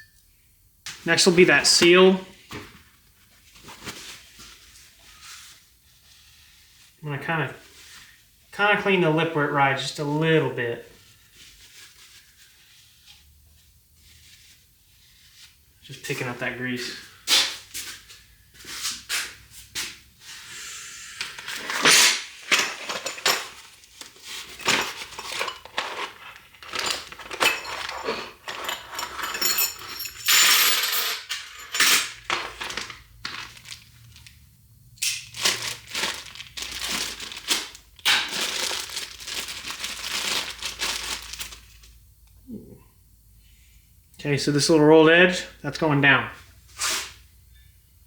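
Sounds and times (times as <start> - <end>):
metal parts clinking: 21.6 - 23.6, 24.5 - 33.0.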